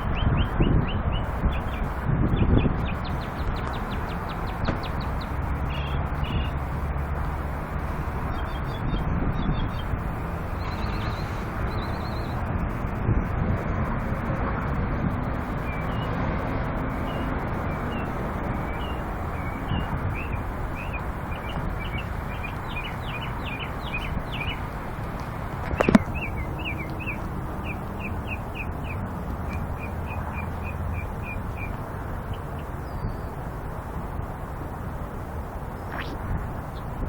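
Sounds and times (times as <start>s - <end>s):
songbird chirping and trilling: 0.0s - 6.9s, 8.3s - 12.4s, 15.6s - 16.2s, 16.9s - 24.9s, 25.7s - 33.4s
steady background rumble: 0.0s - 37.0s.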